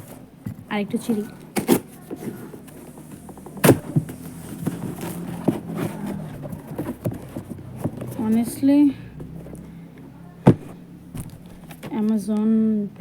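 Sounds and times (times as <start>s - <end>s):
paper tearing and crinkling: 1.6s - 7.0s.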